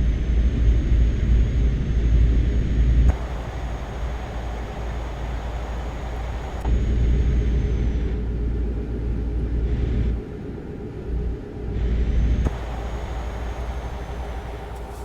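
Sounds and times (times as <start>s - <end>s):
noisy hiss: 3.1s - 6.7s, 12.5s - 15.0s.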